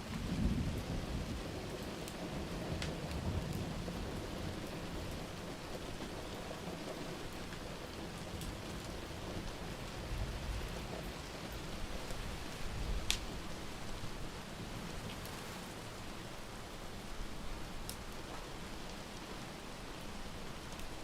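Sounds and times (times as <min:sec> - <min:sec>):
steady rain: 0:00.0 - 0:21.0
wood fire crackling: 0:00.0 - 0:21.0
thunder rumbling: 0:00.1 - 0:06.3.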